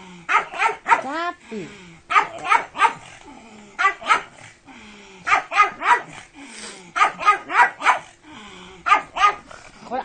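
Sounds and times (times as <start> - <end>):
dog barking: 0.3 - 1.1, 2.1 - 3.1, 3.8 - 4.4, 5.3 - 6.2, 7.0 - 8.1, 8.8 - 9.5.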